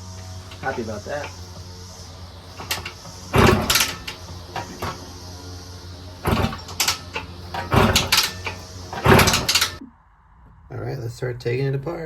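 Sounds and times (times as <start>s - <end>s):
knocks and clatters of tools: 0.0s - 9.8s
steady low hum: 0.0s - 11.9s.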